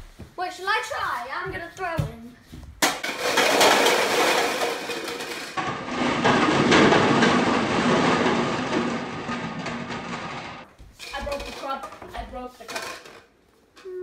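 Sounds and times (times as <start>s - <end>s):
plastic cups clattering: 2.8s - 13.4s.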